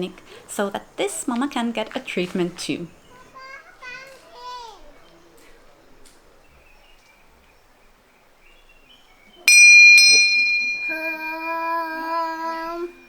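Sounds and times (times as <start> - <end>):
small bell ringing: 9.4 - 13.0
person singing long note: 10.4 - 13.0.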